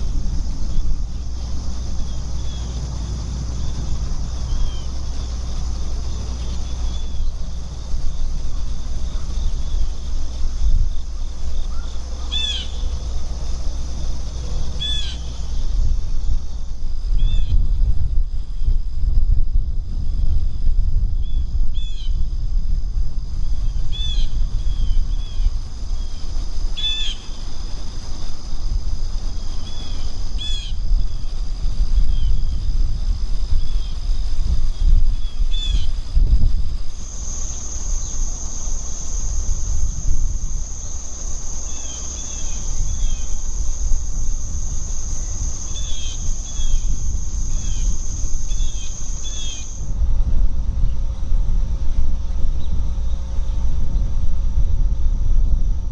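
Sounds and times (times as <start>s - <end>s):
low rumble: 0.0s - 26.7s, 42.4s - 55.9s
high insect trill: 0.0s - 55.9s.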